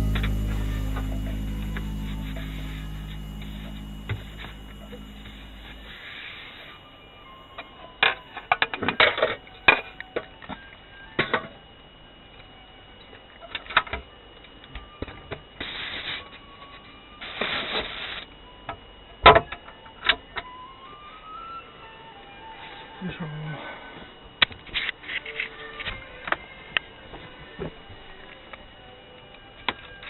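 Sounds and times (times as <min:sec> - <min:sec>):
faint high whine: 0:00.0 - 0:10.2.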